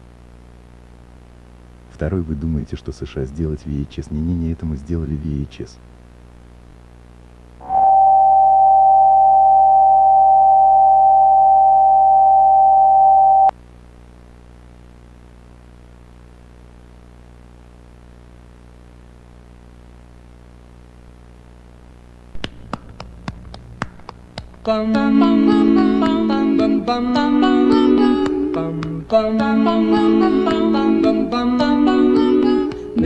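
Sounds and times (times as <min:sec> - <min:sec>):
low electrical hum: 0:00.0 - 0:33.0
electronic sine tone: 0:07.6 - 0:13.6.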